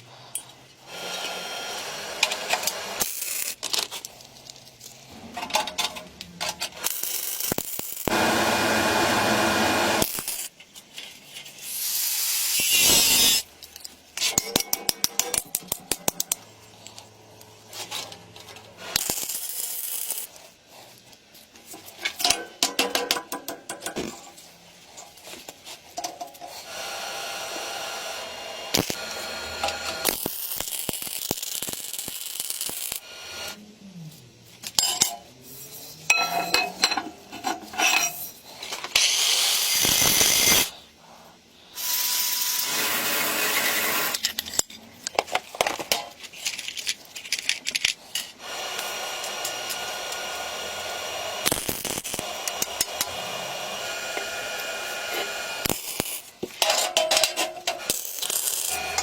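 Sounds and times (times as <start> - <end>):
power tool running: 8.0 - 10.4, 26.7 - 30.6, 39.0 - 40.7, 41.8 - 44.2, 48.4 - 56.1, 57.8 - 59.0
tool whine: 8.0 - 10.4, 12.4 - 13.5, 26.6 - 30.7, 35.7 - 40.8, 57.7 - 59.0
metal parts clinking: 34.6 - 39.1, 44.1 - 48.4, 55.8 - 59.0.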